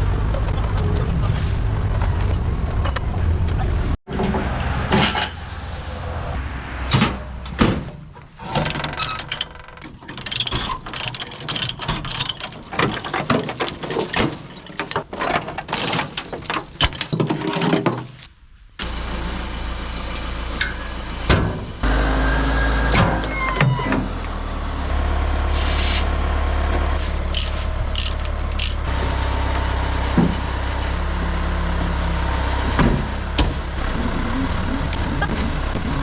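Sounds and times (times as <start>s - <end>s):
vehicle engine running: 0.0s - 8.4s, 18.8s - 36.0s
metallic clanks and rattles: 4.1s - 5.8s, 6.8s - 18.3s.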